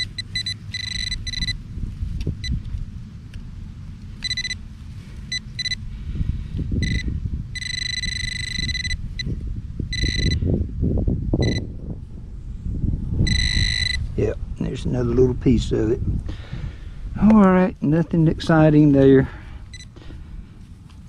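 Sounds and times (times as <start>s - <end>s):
metal detector beeping: 0.0s - 1.6s, 4.2s - 4.6s, 5.3s - 5.8s, 6.8s - 10.5s, 11.4s - 11.7s, 13.2s - 14.1s, 19.7s - 20.0s.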